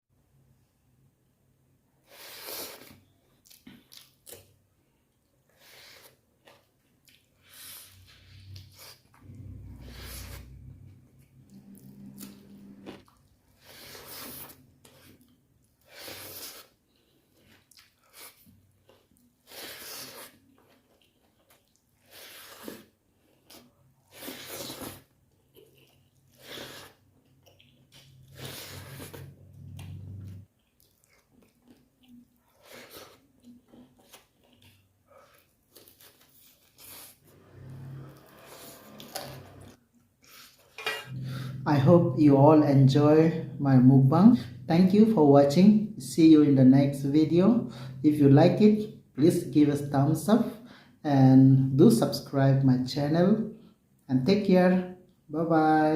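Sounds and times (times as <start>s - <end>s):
wet chewing mouth sounds: 2.5s - 4.6s, 5.6s - 37.2s
low hum: 9.1s - 13.2s, 40.9s - 45.4s.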